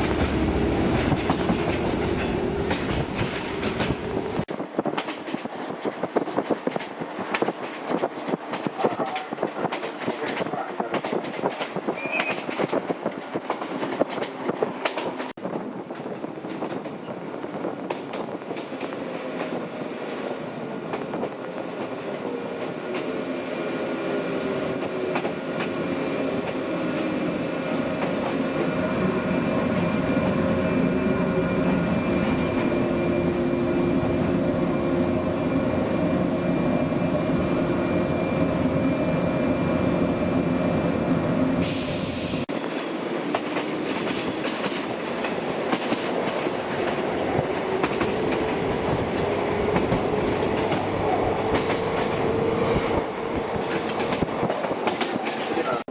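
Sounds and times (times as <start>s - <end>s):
wheel-on-rail clatter: 0.0s - 5.4s
electric train running on rails: 0.0s - 55.9s.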